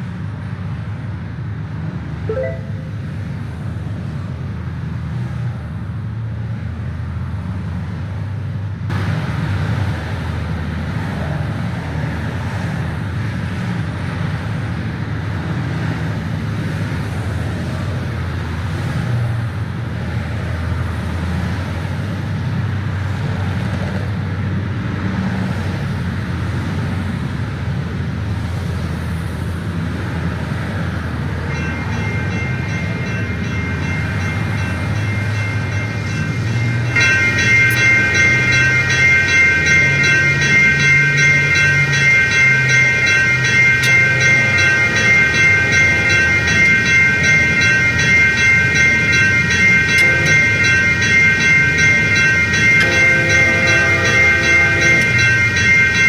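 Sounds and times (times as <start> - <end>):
diesel train rolling: 0.0 - 56.0
rapid ringing tone: 31.5 - 56.0.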